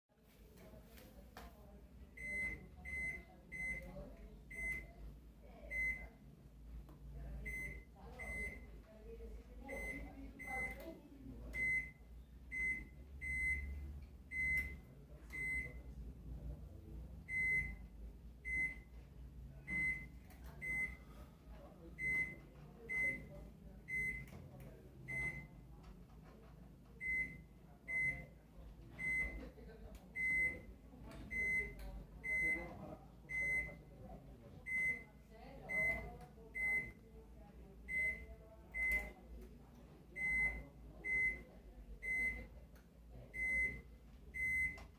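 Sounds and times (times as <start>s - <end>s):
microwave keypad beeping: 2.2s - 3.9s, 4.5s - 4.9s, 5.7s - 6.1s, 7.5s - 8.7s, 9.7s - 10.8s, 11.6s - 15.8s, 17.2s - 18.9s, 19.6s - 21.1s, 22.0s - 24.3s, 25.1s - 25.6s, 27.0s - 28.4s, 29.0s - 29.4s, 30.2s - 32.7s, 33.3s - 33.9s, 34.6s - 35.1s, 35.7s - 37.0s, 37.9s - 39.2s, 40.2s - 42.4s, 43.4s - 44.9s.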